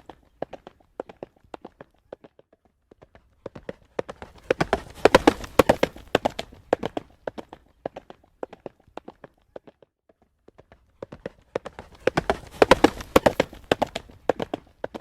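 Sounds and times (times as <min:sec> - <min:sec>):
horse hooves trotting on pavement: 0:00.0 - 0:15.0.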